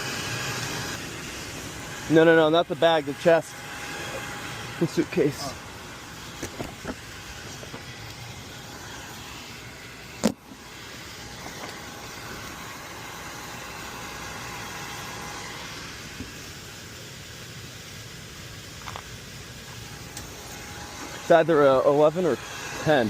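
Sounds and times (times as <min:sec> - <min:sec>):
steady background noise: 0:00.0 - 0:23.0.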